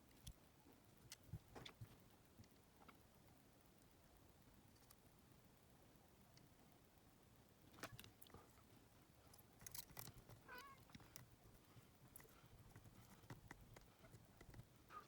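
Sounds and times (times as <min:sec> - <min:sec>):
small parts clicking and tapping: 0:09.3 - 0:11.4, 0:12.0 - 0:14.8.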